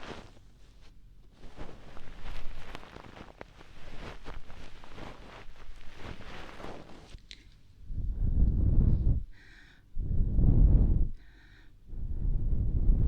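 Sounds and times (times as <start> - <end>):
scratching and crackling on microphone: 0.0 - 7.4
faint appliance hum: 0.0 - 13.0.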